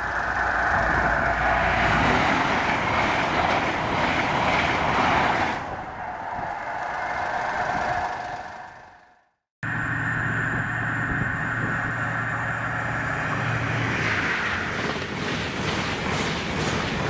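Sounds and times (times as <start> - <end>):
train passing at speed: 0.0 - 17.0
high whine: 5.8 - 14.8.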